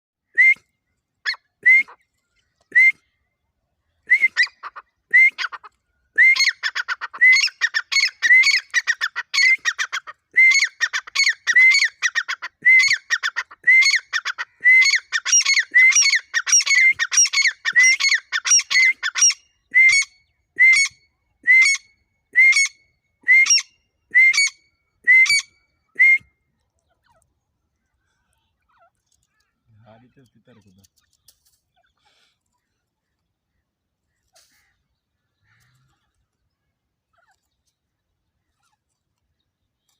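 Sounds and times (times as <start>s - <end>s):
francolin calling: 4.2s - 20.9s.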